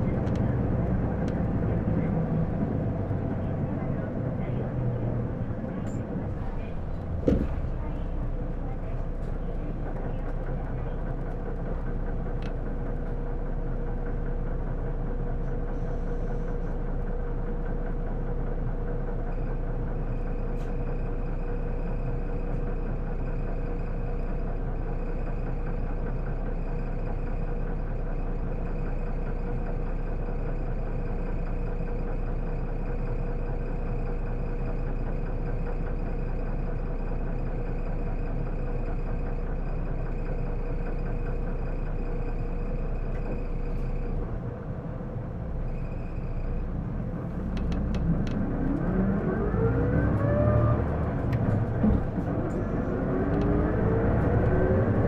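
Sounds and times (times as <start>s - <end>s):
bus diesel engine idling: 0.0s - 55.0s.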